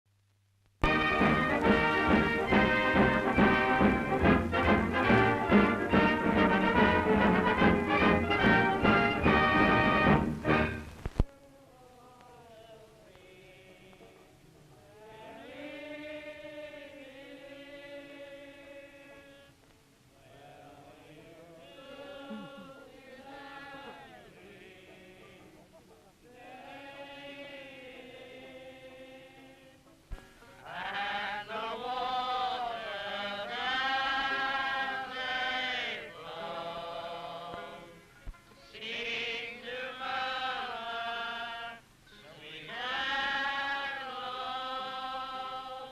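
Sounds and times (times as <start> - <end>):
men singing together: 14.9 - 19.5, 20.3 - 25.7, 26.3 - 29.8, 30.6 - 38.0, 38.7 - 45.9.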